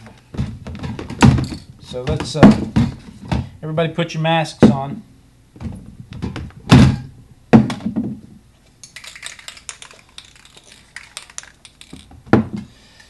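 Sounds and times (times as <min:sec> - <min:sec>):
spray cans clattering: 0:08.8 - 0:12.2
spray cans knocking: 0:08.8 - 0:12.5.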